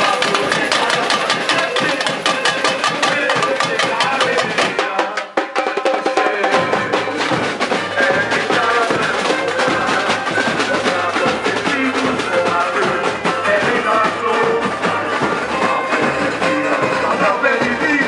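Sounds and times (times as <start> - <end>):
samba drumming: 0.0 - 18.0.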